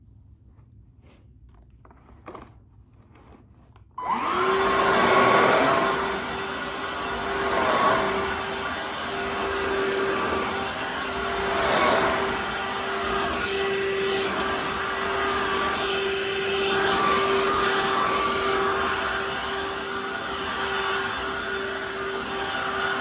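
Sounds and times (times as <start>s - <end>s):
stick vacuum running: 4.0s - 23.0s.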